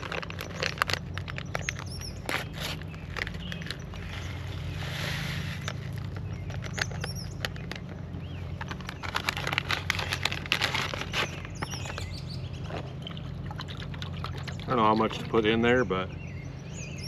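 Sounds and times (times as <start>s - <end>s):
packaging crinkling: 0.0s - 12.1s
steady low hum: 0.0s - 17.0s.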